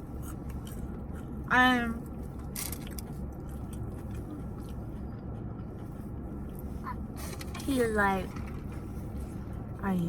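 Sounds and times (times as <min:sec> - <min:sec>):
low hum inside car: 0:00.0 - 0:10.0
person chewing food: 0:00.1 - 0:01.4, 0:02.8 - 0:06.7.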